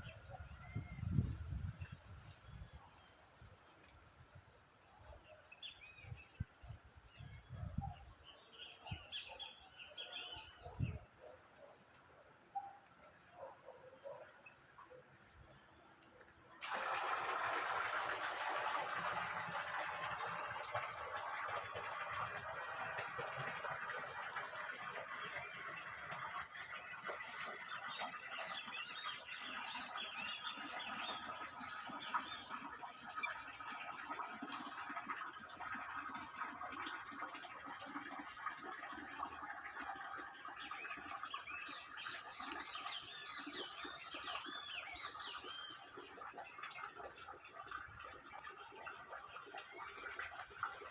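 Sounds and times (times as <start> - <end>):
birds whistling rising notes: 3.9 - 8.5, 12.3 - 15.2, 26.2 - 33.2
birds chirping: 20.2 - 33.4.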